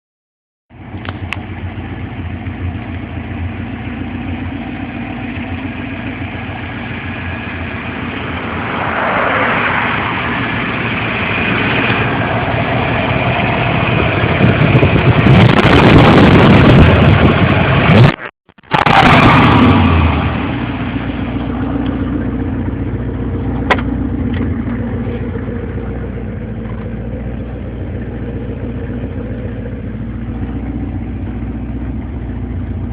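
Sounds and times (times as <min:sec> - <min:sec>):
car engine idling and revving: 0:00.7 - 0:32.9.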